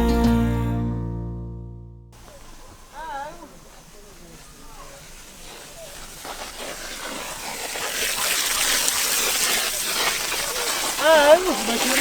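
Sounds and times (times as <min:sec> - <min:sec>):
rushing water: 0:06.5 - 0:12.0.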